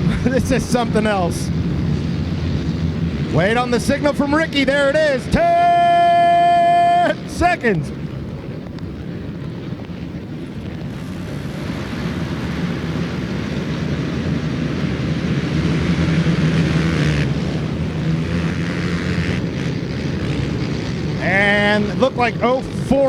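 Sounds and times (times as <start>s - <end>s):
atv engines revving: 0.0s - 23.0s.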